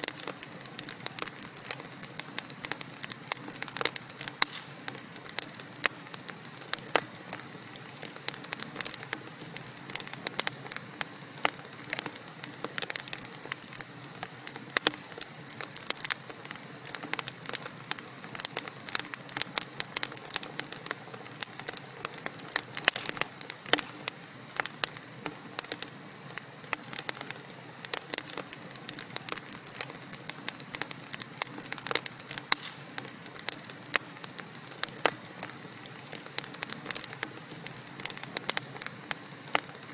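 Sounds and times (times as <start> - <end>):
fire soft hiss: 0.0 - 39.9
log fire crackling and popping: 0.0 - 39.9.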